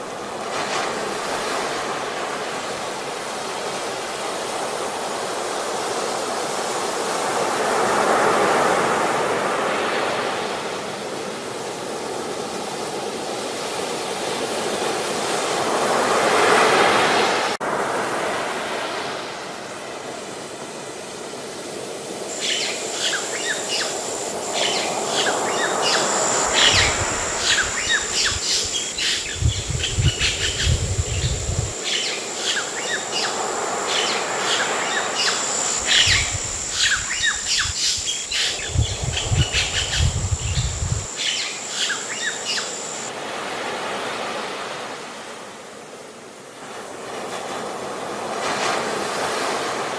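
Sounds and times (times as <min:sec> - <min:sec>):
ocean waves washing: 0:13.4 - 0:45.5
high insect trill: 0:21.9 - 0:43.1
birds chirping: 0:22.3 - 0:43.1.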